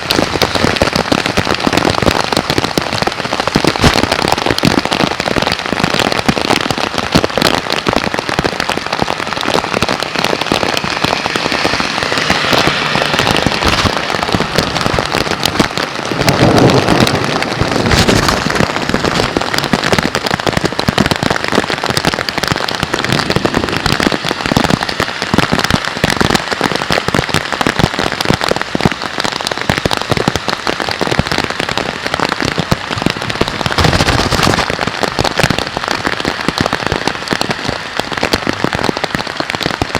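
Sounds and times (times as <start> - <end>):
heavy rain: 0.0 - 39.9
deep thunder rumble: 9.1 - 26.4.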